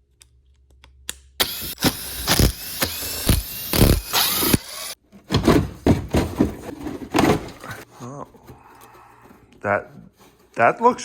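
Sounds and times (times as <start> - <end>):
handheld power tool running: 1.4 - 5.0.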